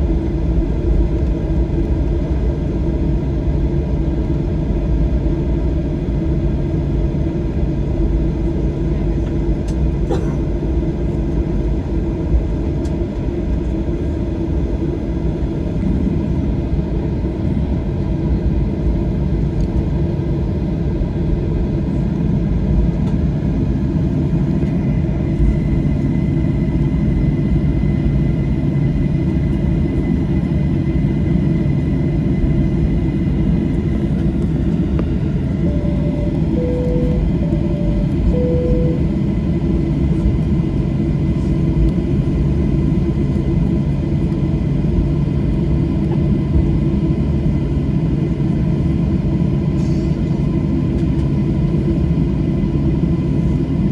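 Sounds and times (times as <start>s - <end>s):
airplane cabin engine rumble: 0.0s - 53.9s
faint steady whine: 32.1s - 40.3s.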